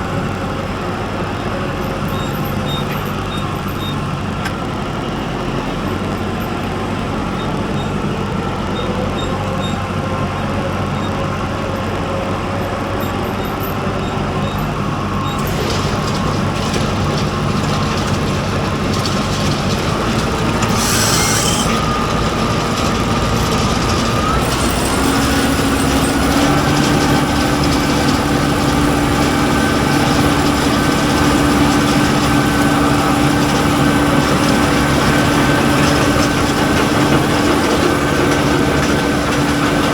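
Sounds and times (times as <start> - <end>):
vehicle engine under load: 0.0 - 39.9
brief hiss: 20.6 - 21.8.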